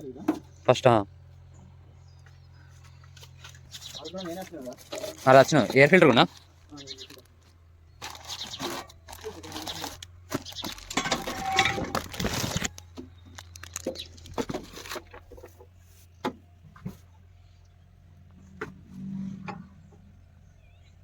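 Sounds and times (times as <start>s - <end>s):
filter rustling and crinkling: 3.1s - 17.0s.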